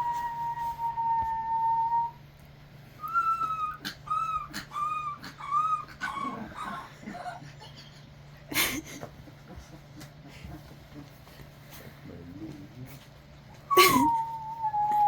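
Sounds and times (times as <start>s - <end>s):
dogs howling: 0.0s - 2.1s, 3.1s - 7.4s, 13.7s - 15.0s
man whistling long note: 0.0s - 2.2s, 3.0s - 3.7s.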